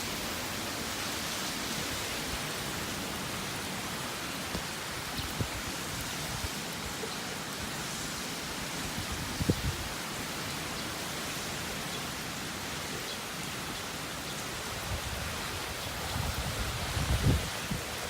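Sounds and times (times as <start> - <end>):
heavy rain hissing: 0.0 - 18.0
wind gusts buffeting microphone: 8.9 - 10.0, 14.7 - 18.0.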